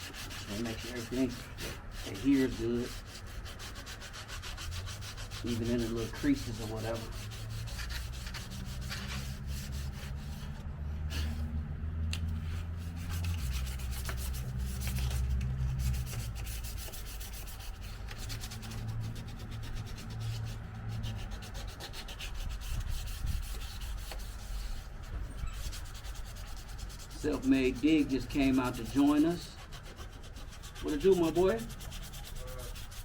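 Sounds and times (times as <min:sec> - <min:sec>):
sanding car body panel: 0:00.0 - 0:11.4, 0:12.4 - 0:33.0.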